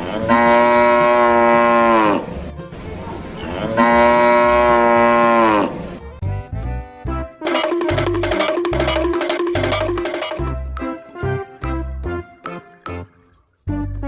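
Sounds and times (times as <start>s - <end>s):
cow mooing: 0.0s - 2.3s, 3.6s - 5.8s.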